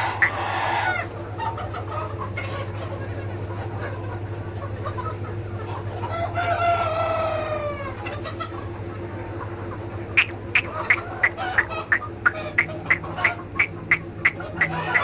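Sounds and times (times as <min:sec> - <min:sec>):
rooster crowing: 0:00.0 - 0:01.1, 0:06.1 - 0:08.0, 0:14.5 - 0:15.0
chickens clucking: 0:00.0 - 0:15.0.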